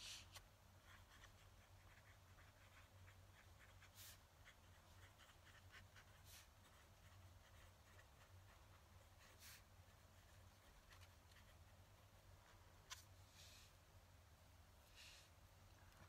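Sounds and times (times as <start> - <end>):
pen nib scratching on paper: 0.2 - 13.1.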